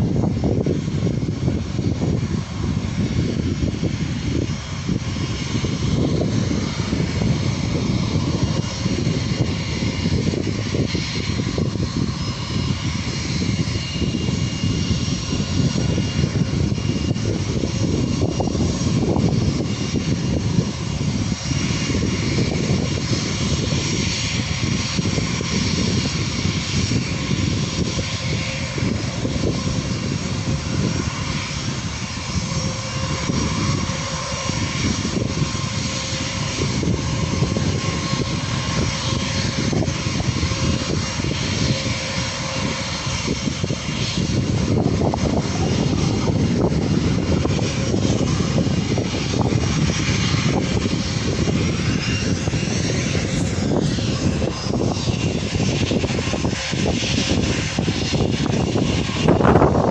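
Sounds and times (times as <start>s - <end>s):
jet engines rumbling: 0.0s - 59.9s
thin engine whine: 0.0s - 59.9s.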